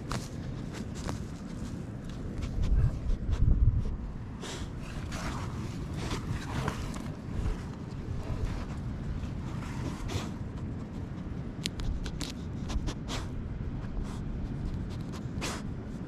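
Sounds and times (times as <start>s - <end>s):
scrapes and rustles from walking: 0.0s - 3.2s, 3.8s - 12.4s
low rumbling microphone noise: 0.0s - 12.0s.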